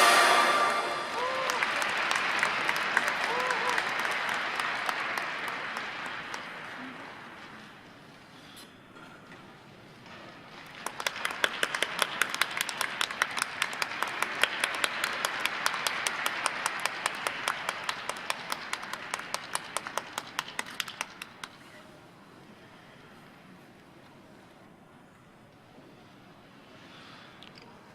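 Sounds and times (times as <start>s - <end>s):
hands clapping sharply: 0.0s - 7.4s, 10.6s - 21.6s
audience applause: 0.0s - 7.6s, 10.6s - 21.5s.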